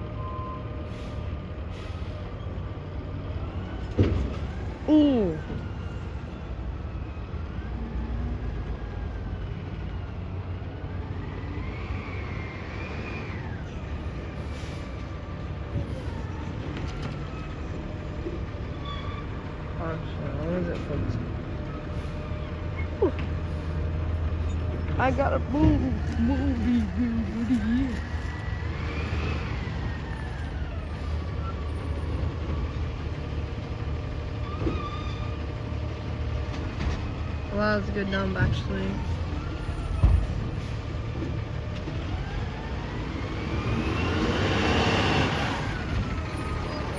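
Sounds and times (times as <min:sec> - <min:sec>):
truck engine rumbling: 0:00.0 - 0:46.9.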